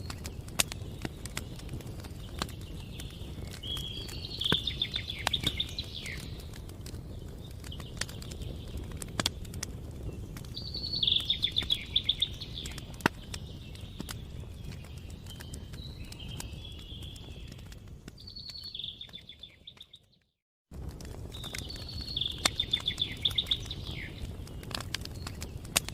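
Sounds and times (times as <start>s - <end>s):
campfire crackling and popping: 0.0s - 25.9s
songbird trilling: 2.9s - 6.3s, 10.6s - 12.9s, 21.6s - 24.3s.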